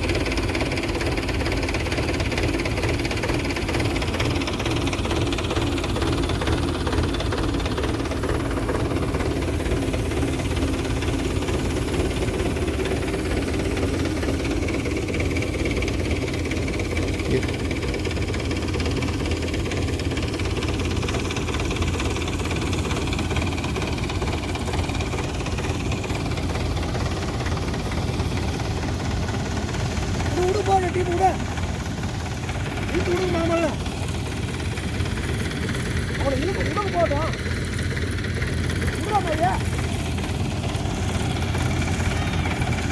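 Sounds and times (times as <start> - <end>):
tractor engine running steadily: 0.0 - 42.9.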